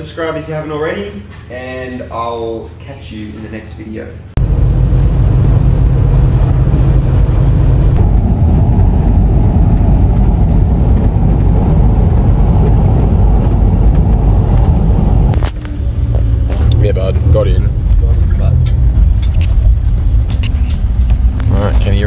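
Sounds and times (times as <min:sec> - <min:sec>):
vehicle engine and road rumble: 0:04.4 - 0:22.0.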